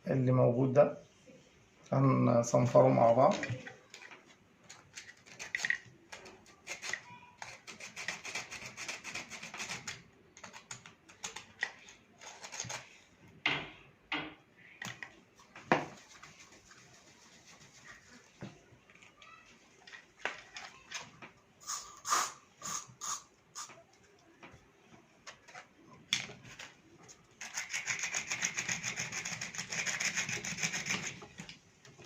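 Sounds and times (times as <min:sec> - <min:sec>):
sandpaper rubbing on metal: 0:27.4 - 0:31.2.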